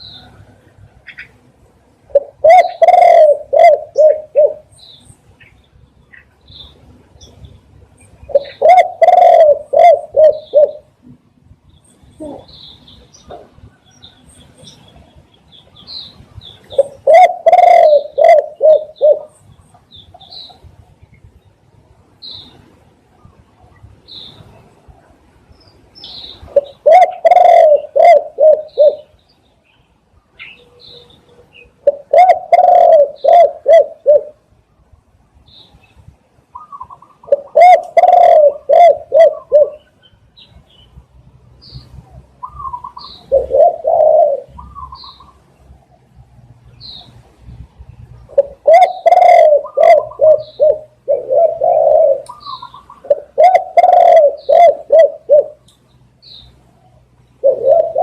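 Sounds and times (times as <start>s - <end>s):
small birds chirping: 0.0s - 58.0s
dove cooing: 2.1s - 4.8s, 8.3s - 11.0s, 12.2s - 12.6s, 16.7s - 19.4s, 26.4s - 29.1s, 31.8s - 34.4s, 36.5s - 40.0s, 41.8s - 45.4s, 48.2s - 55.6s, 57.2s - 58.0s.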